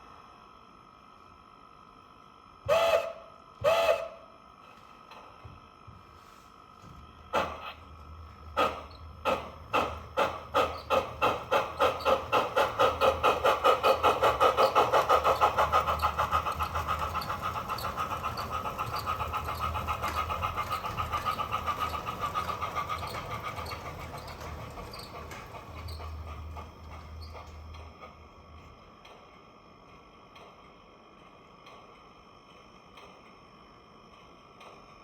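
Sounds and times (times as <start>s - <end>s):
model steam locomotive chuffs: 2.3s - 5.4s, 7.3s - 35.0s.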